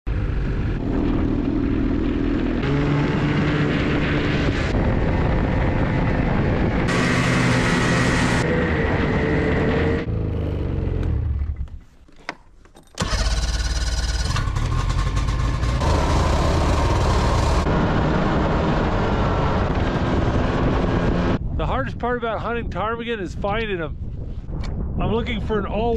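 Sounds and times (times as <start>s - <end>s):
snowmobile engine running: 0.1s - 11.7s, 13.0s - 21.4s.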